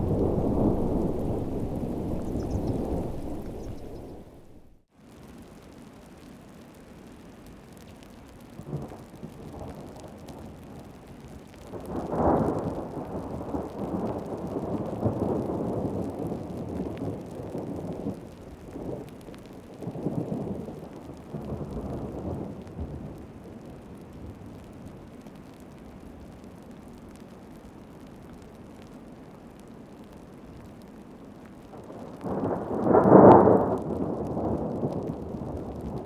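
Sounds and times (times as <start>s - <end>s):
thunder rolling: 0.0s - 4.8s
heavy rain: 0.0s - 36.0s.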